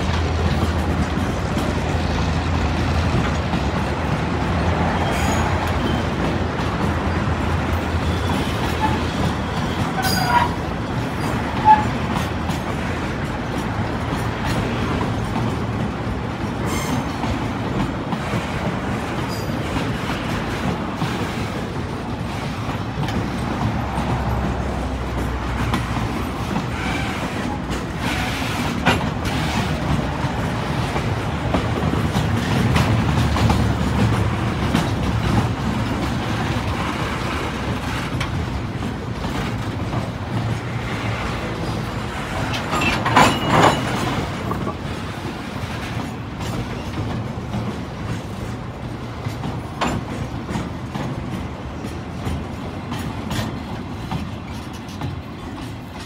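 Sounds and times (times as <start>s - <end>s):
train wheels rumbling on rail: 0.0s - 56.0s
wheel squeal: 8.0s - 11.9s.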